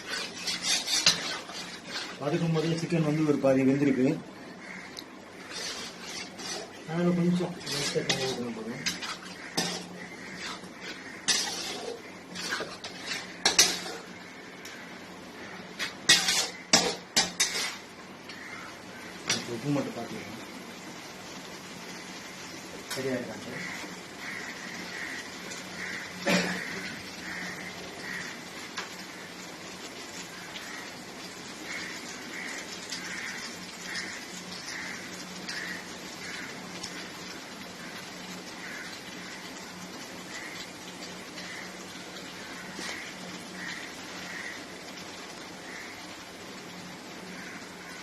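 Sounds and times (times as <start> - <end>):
metal spoon scraping a pan: 0.0 - 2.9, 5.4 - 14.3, 15.6 - 18.6
food simmering in a pan: 0.0 - 48.0.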